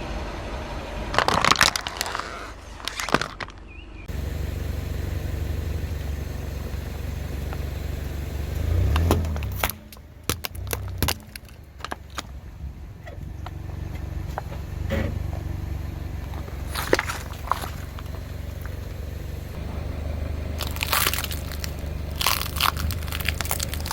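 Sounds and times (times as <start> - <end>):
car engine rumbling: 0.0 - 23.9
tyre crushing brittle objects: 1.1 - 3.7, 8.7 - 12.4, 16.3 - 18.8, 20.6 - 23.9.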